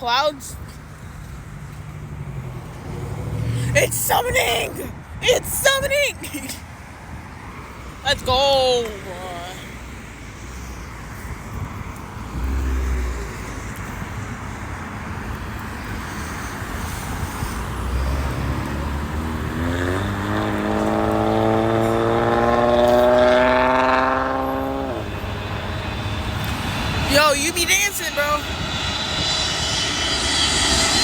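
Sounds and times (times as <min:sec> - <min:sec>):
jet airliner passing overhead: 0:09.3 - 0:31.0.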